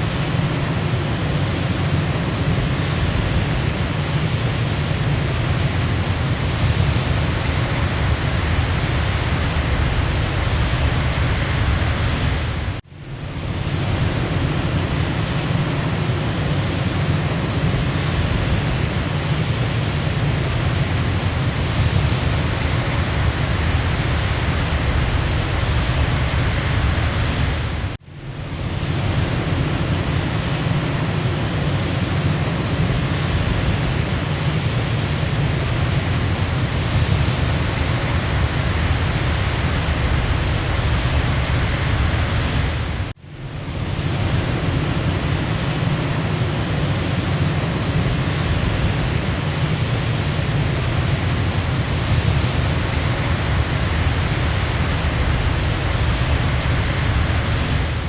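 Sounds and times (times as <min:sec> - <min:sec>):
waterfall roar: 0:28.7 - 0:58.0.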